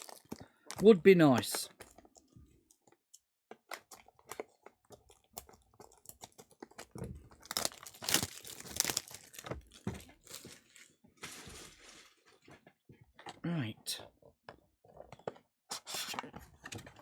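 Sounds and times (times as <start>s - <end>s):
plastic wrapping crinkling and tearing: 0.0s - 0.8s, 3.7s - 12.6s.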